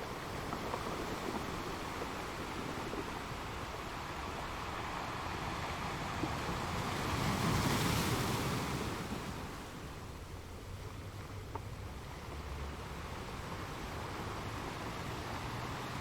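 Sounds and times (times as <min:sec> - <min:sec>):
ocean waves breaking: 0:00.0 - 0:10.3.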